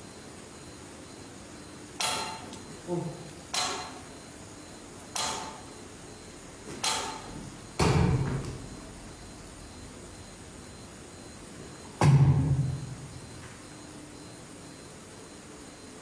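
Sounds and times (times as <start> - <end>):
sharp ringing knocks: 2.0 - 2.5, 3.5 - 4.1, 5.2 - 5.7, 6.8 - 8.4, 12.0 - 13.0.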